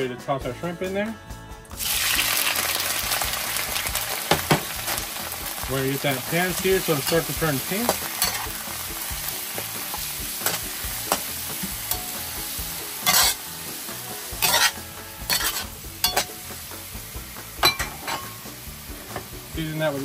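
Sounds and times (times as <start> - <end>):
shrimp sizzling in a pan: 1.8 - 20.0
utensil scraping a pan: 6.1 - 8.8, 9.5 - 13.5, 14.1 - 16.6, 17.6 - 18.4.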